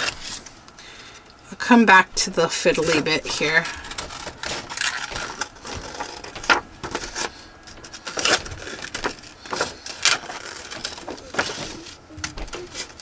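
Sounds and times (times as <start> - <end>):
scissors snipping paper: 2.7 - 13.0.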